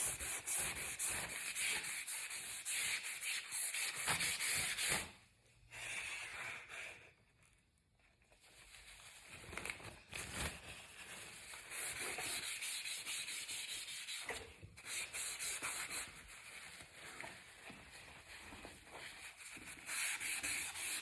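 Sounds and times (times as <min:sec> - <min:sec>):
pencil rubbing on paper: 0:00.0 - 0:05.1, 0:11.6 - 0:17.1, 0:19.0 - 0:21.0.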